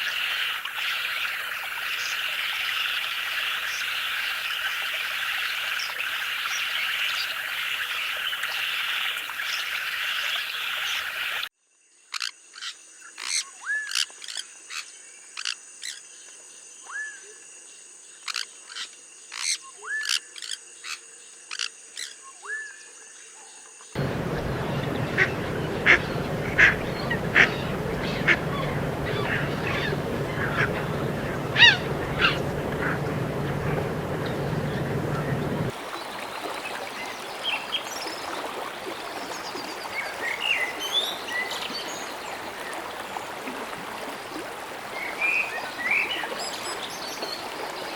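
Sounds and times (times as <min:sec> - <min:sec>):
birds chirping and whistling: 0:24.0 - 0:35.7
frogs calling: 0:24.0 - 0:35.7
low hum: 0:24.0 - 0:35.7
rushing hiss: 0:24.0 - 0:35.7.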